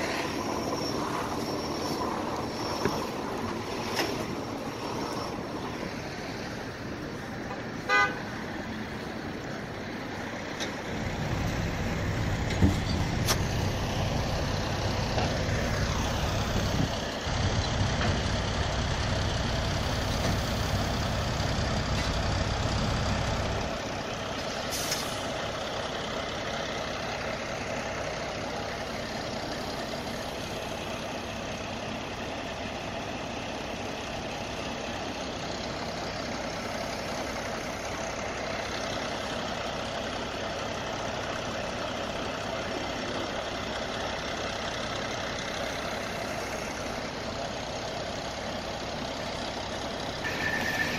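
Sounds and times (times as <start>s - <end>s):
heavy truck engine running: 0.0s - 50.9s
outdoor street noise: 0.0s - 50.9s
air brake hiss: 24.6s - 25.4s
short pitched beep: 50.2s - 50.9s.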